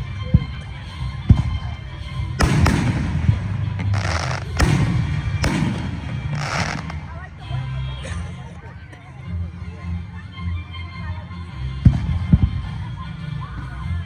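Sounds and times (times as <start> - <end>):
firework booms: 2.4 - 7.3
firework crackling bursts: 2.4 - 7.5.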